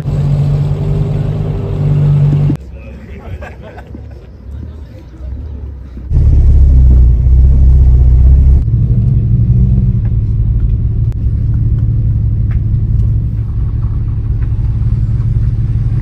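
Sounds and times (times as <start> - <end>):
car engine rumbling: 0.0 - 2.6, 6.0 - 16.0.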